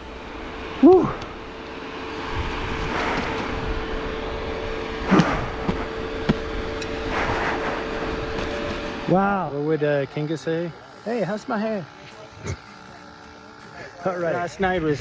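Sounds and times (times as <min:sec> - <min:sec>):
road noise on dirt road: 0:00.0 - 0:11.8.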